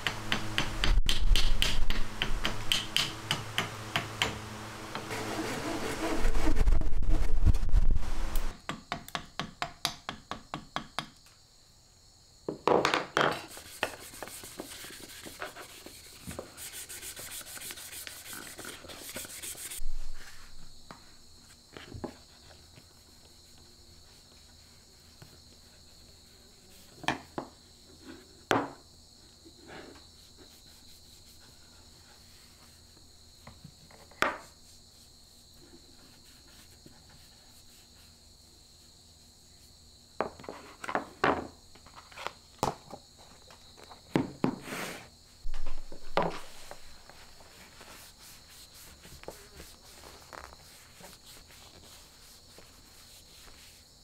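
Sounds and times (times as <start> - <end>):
steady high hiss: 0.0 - 8.6, 13.4 - 33.6, 44.5 - 54.0
tool scraping along wood: 0.1 - 6.8.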